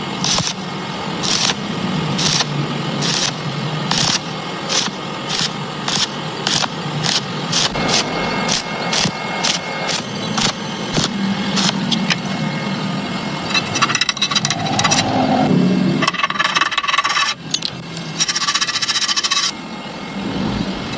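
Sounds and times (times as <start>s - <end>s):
welding arc crackling: 0.0s - 12.2s
low hum: 7.8s - 18.4s.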